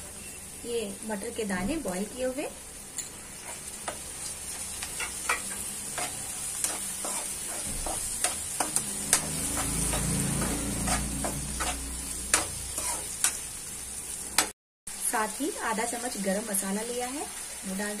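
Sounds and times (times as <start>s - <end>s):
vegetables sizzling in hot oil: 0.0s - 18.0s
spatula scraping and tapping pan: 4.8s - 13.4s.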